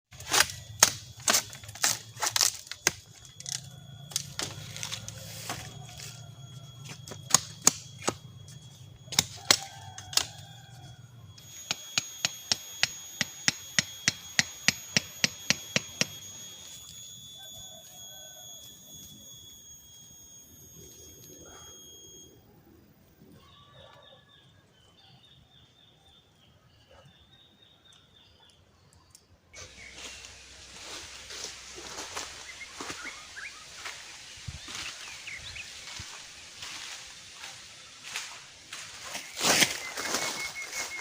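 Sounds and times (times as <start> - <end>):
hand tool striking wood: 0.2 - 5.7, 6.8 - 10.4, 11.4 - 16.3
high-pitched insect drone: 0.3 - 23.1, 29.6 - 41.0.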